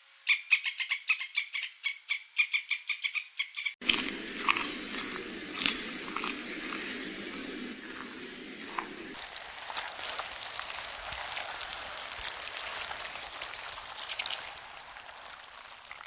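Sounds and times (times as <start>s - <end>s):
rain falling: 7.1s - 16.0s.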